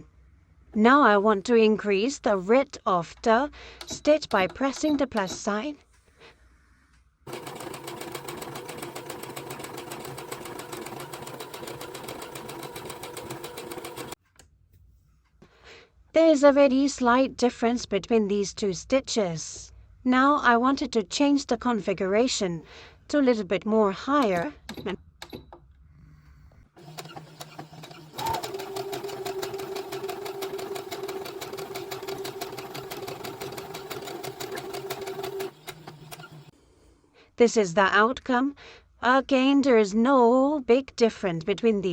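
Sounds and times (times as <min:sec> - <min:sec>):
sewing machine stitching: 0:03.8 - 0:05.5, 0:07.3 - 0:14.2, 0:26.8 - 0:36.5.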